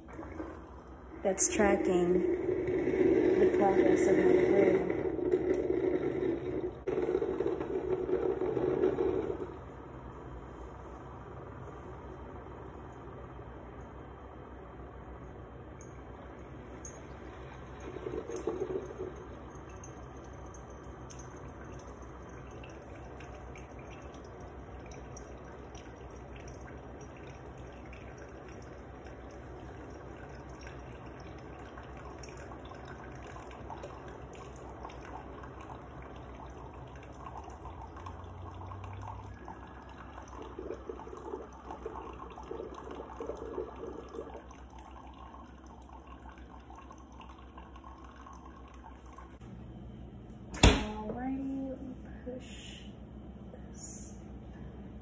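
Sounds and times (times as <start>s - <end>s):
coffee maker sputtering: 0.0s - 10.0s, 16.0s - 49.4s
coffee maker humming: 0.0s - 55.0s
coffee dripping into cup: 15.1s - 49.4s.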